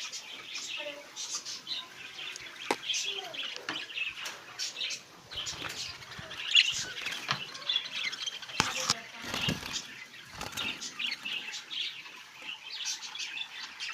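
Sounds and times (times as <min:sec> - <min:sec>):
budgerigars chirping: 0:00.0 - 0:13.9
wing flutters: 0:05.3 - 0:11.6.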